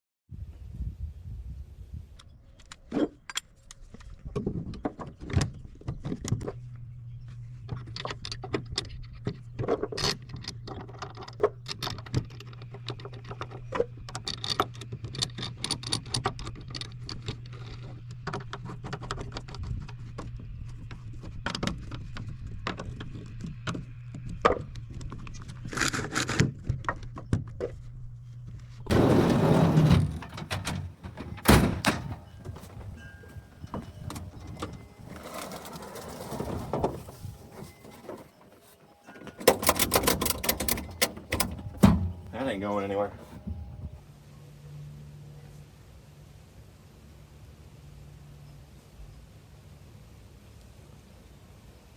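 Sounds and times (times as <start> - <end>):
metal straps clinking and scraping: 29.7 - 42.4.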